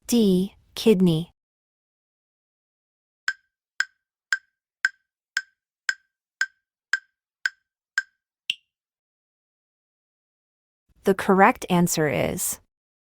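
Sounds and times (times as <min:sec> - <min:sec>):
countdown timer clicks: 0:03.3 - 0:08.6.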